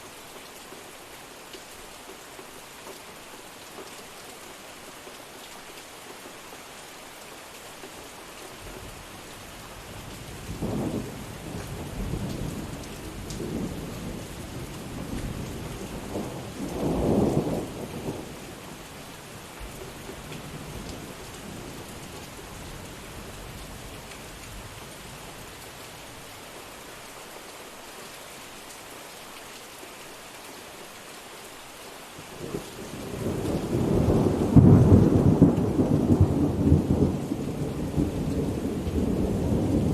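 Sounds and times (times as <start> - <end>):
steady rain falling: 0.0 - 39.9
thunder rumbling: 32.9 - 39.9.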